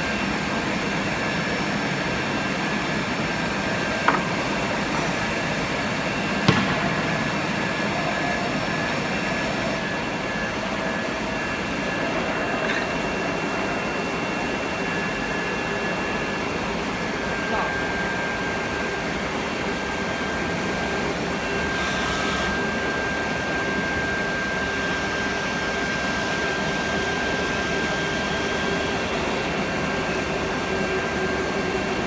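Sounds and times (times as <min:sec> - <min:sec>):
high steady whines: 0:00.0 - 0:32.0
machine noise: 0:00.0 - 0:32.0
sharp knocks: 0:06.4 - 0:07.2.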